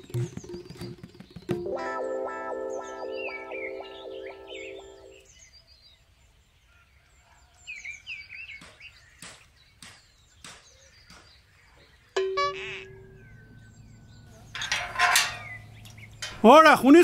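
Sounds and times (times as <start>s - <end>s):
birds chirping: 0.0s - 6.6s, 7.5s - 17.0s
background music: 1.5s - 5.2s.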